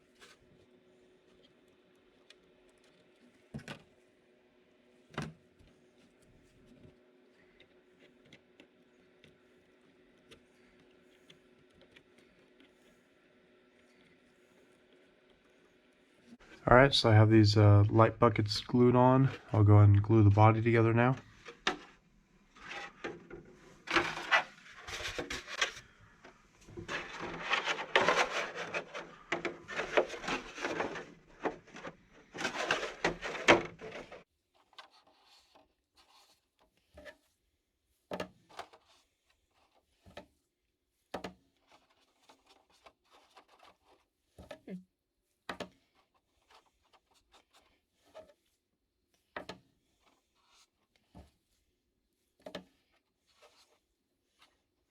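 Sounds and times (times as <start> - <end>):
hands scraping and rubbing plastic: 5.8 - 37.4, 41.2 - 44.8.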